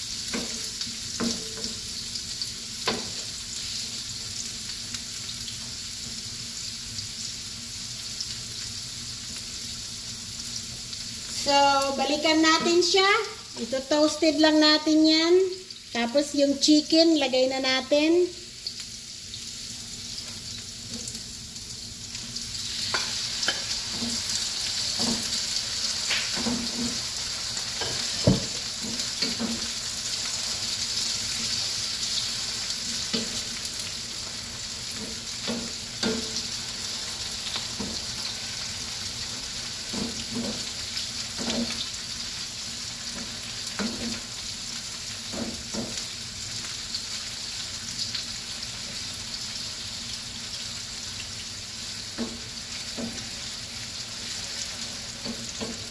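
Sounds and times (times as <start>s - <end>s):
meat sizzling in oil: 0.0s - 55.9s.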